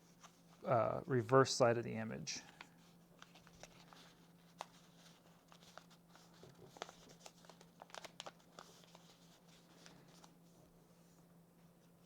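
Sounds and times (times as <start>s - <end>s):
faint low hum: 0.0s - 12.0s
paper rustling and crinkling: 2.5s - 12.0s.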